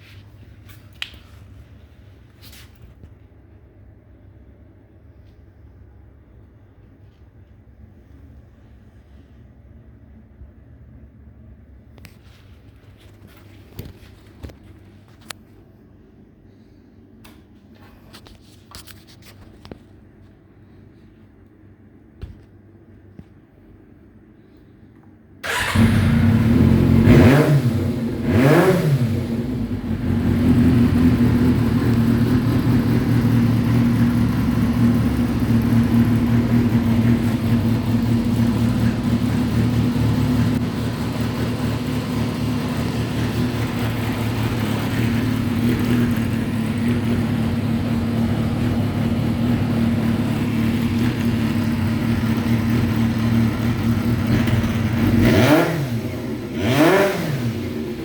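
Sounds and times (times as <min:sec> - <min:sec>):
motorcycle engine revving and idling: 0:25.4 - 0:58.0.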